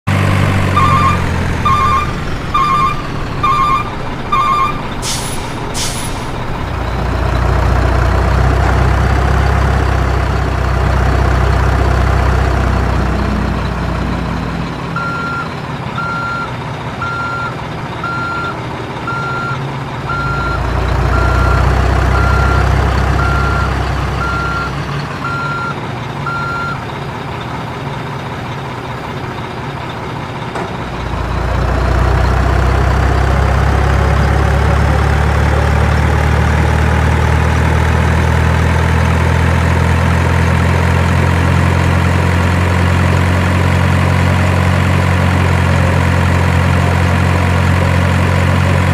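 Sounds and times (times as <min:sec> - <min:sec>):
heavy diesel machinery rumbling: 0:00.1 - 0:48.9
backup alarm beeping: 0:00.7 - 0:05.2, 0:14.9 - 0:26.8
higher-pitched beeps: 0:00.8 - 0:05.4
air brake hisses: 0:05.0 - 0:06.4.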